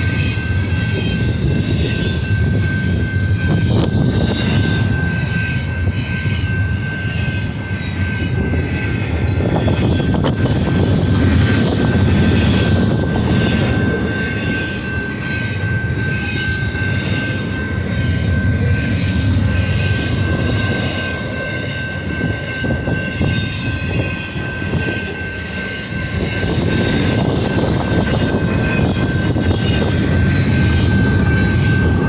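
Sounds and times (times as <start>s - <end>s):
freight train rumble: 0.0s - 32.0s
high ringing tone: 0.0s - 32.0s.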